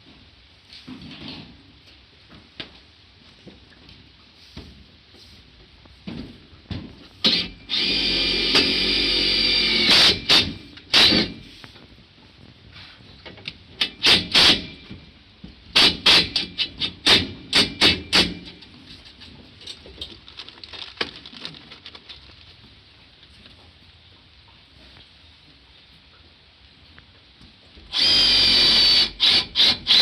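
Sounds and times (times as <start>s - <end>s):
power drill running: 7.3s - 11.3s, 27.9s - 30.0s.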